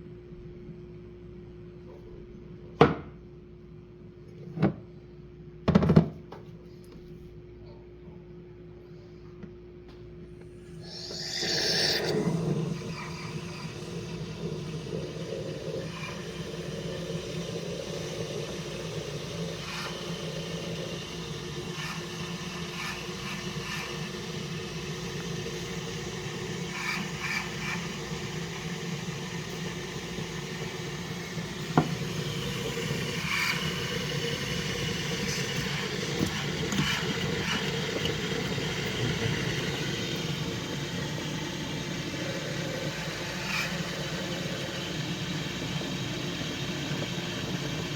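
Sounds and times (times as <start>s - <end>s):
coffee machine humming: 10.2s - 47.9s.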